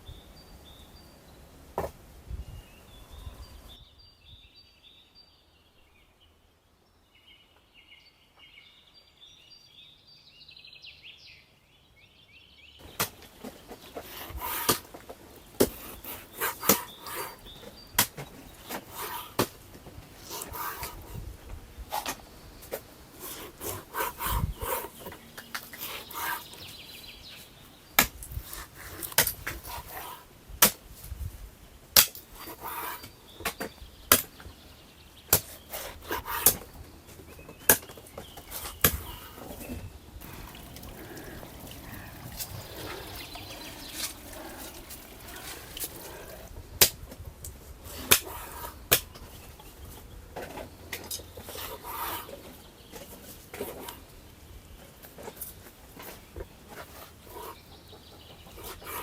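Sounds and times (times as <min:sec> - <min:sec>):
birds chirping faintly: 0:02.4 - 0:30.4, 0:31.6 - 0:46.8.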